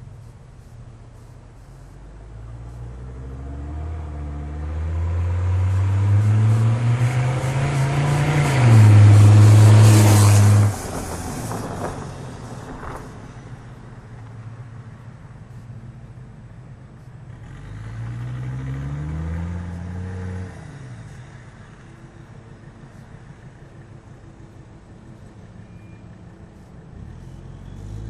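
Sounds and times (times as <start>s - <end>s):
diesel car accelerating past: 2.2s - 14.8s, 17.2s - 24.2s, 25.7s - 28.0s.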